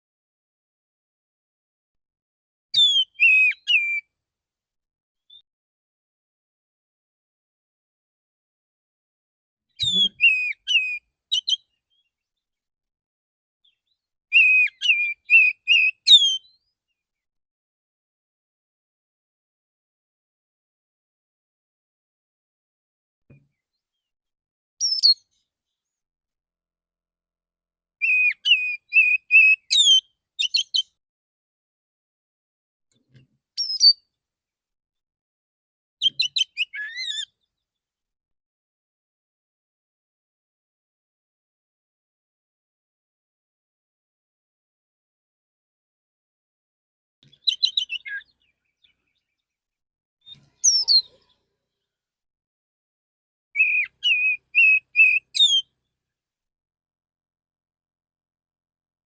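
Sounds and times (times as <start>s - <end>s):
bird singing whistled notes: 2.8s - 4.1s, 9.7s - 12.1s, 13.6s - 16.7s, 24.8s - 25.4s, 28.0s - 31.0s, 33.6s - 34.0s, 36.0s - 37.3s, 47.3s - 49.4s, 50.3s - 51.4s, 53.6s - 55.7s.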